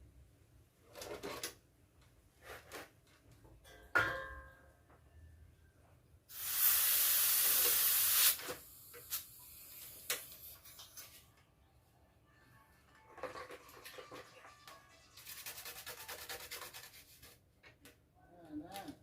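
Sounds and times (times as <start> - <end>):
pressurised gas hissing: 6.3 - 10.6.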